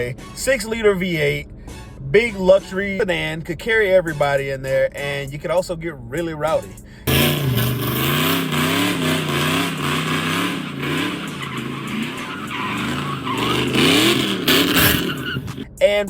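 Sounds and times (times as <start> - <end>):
car engine revving hard: 7.1 - 15.7
tyres squealing and skidding: 7.1 - 15.7.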